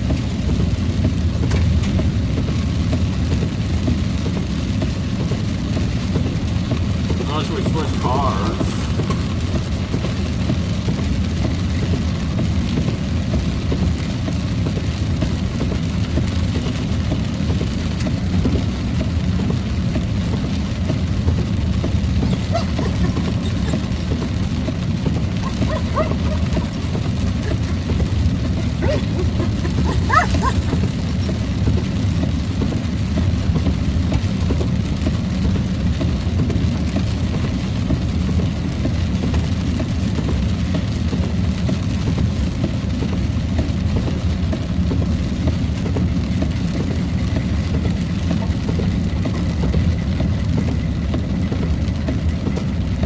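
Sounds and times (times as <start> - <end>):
car interior rumble: 0.0 - 53.0.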